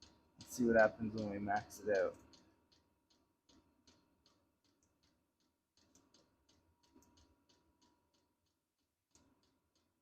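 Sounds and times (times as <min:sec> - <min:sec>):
fuel pump ticking: 0:00.0 - 0:10.0.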